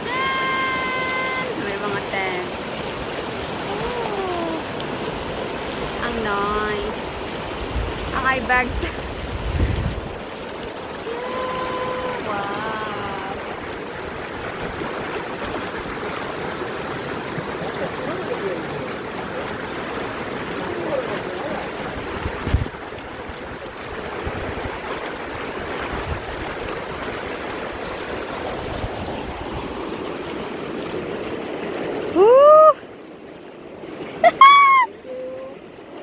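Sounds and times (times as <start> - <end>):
stream rushing over rocks: 0.0 - 36.0.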